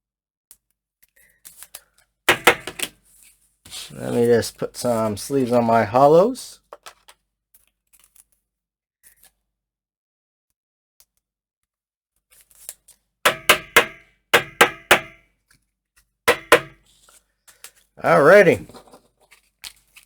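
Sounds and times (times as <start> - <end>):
quiet handling of cards: 3.0 - 5.7.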